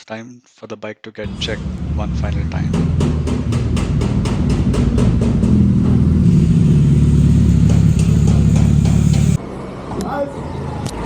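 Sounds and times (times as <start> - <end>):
motorcycle engine running loud: 3.8 - 9.4.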